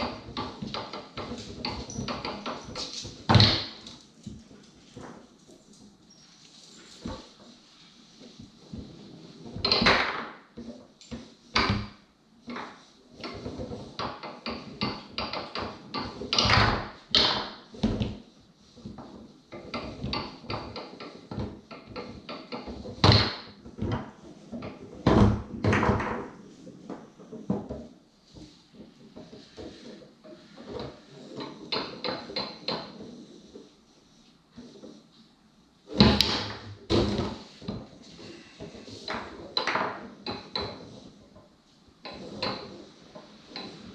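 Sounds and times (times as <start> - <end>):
sharp cracks of foosball shots: 0.0 - 3.9, 14.0 - 18.2, 22.4 - 23.6, 36.0 - 37.4
foosball ball knocking: 0.0 - 4.0, 9.5 - 10.6, 12.6 - 18.2, 19.0 - 34.1, 35.9 - 41.2.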